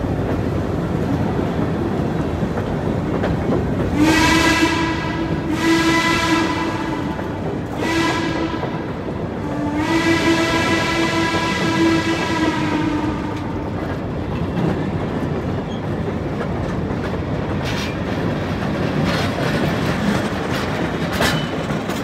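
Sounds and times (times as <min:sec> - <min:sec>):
train cars rolling on rails: 0:00.0 - 0:22.0
train whistle: 0:03.9 - 0:13.7.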